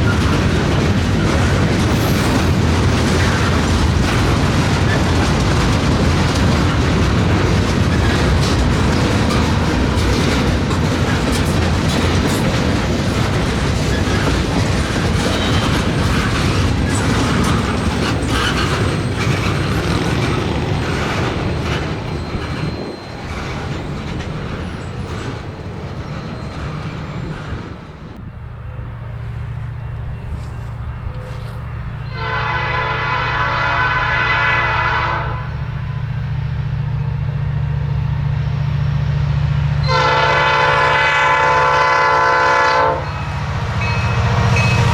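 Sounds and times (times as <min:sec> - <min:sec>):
railcar wheels clicking over joints: 0:00.0 - 0:33.9
locomotive air horn: 0:31.3 - 0:36.0, 0:39.8 - 0:43.3.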